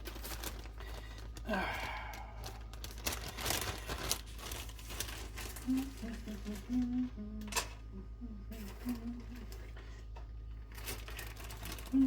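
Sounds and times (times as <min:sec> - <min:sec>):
man sighing: 0:01.4 - 0:02.6.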